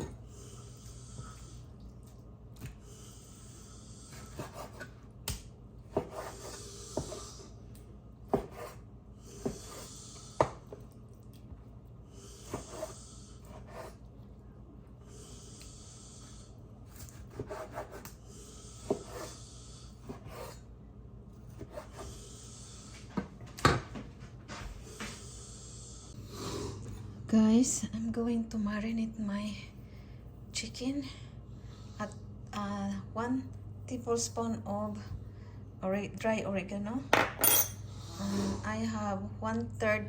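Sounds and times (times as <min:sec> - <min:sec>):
knife sawing through raw chicken: 0:16.9 - 0:18.2.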